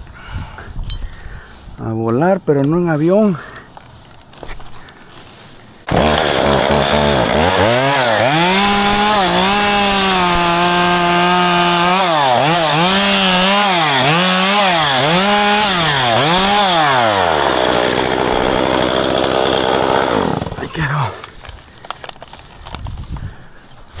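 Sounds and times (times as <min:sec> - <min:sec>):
chainsaw cutting branches: 0:05.8 - 0:22.9.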